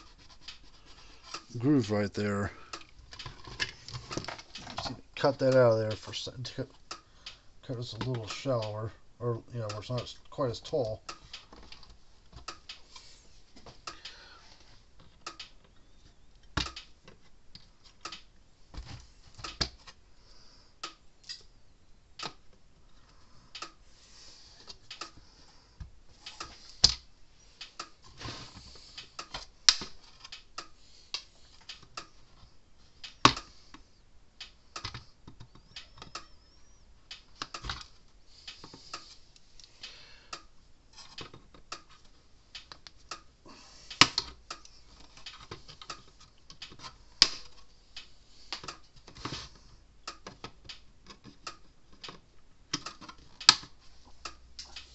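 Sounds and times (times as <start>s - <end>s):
small parts clicking and tapping: 0.0s - 8.8s, 15.0s - 20.0s, 24.6s - 43.3s, 43.9s - 54.9s.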